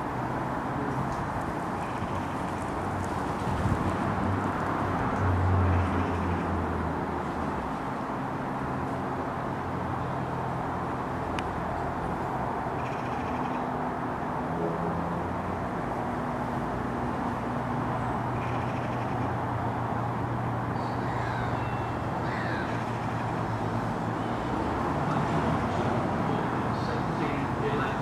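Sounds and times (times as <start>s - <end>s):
bird calls: 12.8s - 13.7s, 18.3s - 19.4s, 20.7s - 23.4s.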